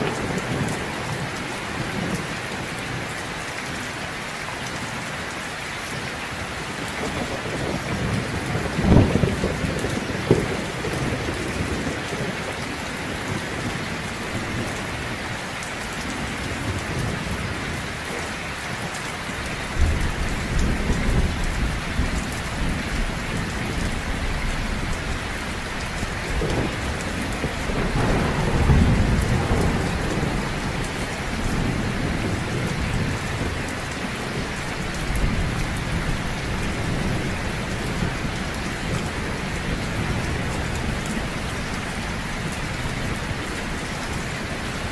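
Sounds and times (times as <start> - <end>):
heavy rain falling: 0.0 - 44.9
thunder rumbling: 6.8 - 15.4, 16.0 - 44.9
thunder cracks: 7.0 - 12.3, 25.8 - 33.6.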